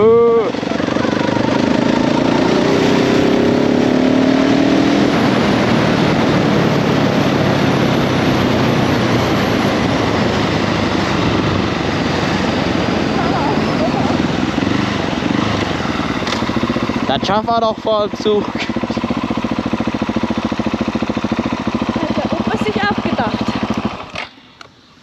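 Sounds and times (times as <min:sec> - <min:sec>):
motorcycle engine accelerating: 0:00.0 - 0:24.6
wind rushing over microphone: 0:04.7 - 0:16.0.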